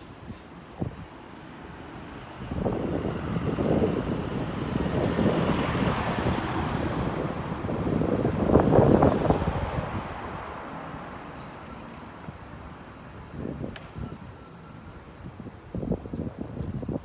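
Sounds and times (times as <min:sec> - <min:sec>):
train passing on rails: 0:00.0 - 0:16.9
wheels squealing on rails: 0:00.0 - 0:17.0.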